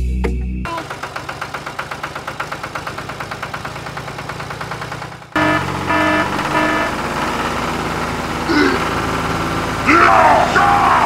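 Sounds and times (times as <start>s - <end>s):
tractor engine chugging: 0.7s - 11.0s
short tones: 5.4s - 9.8s.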